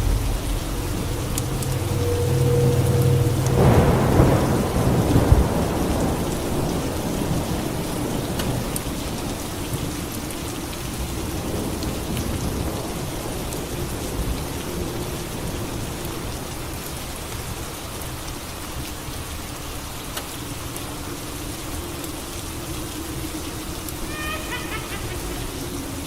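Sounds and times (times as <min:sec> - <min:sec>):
thunderclap rumbling: 0:00.0 - 0:16.0, 0:20.4 - 0:26.0
steady rain: 0:00.0 - 0:26.0.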